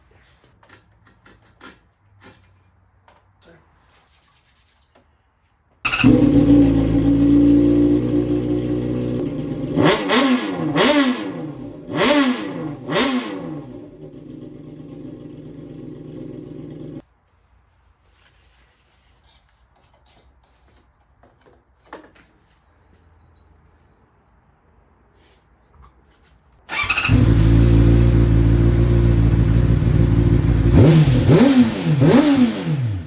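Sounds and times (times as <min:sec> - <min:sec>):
motorcycle engine revving: 0:05.9 - 0:17.0, 0:26.7 - 0:33.0.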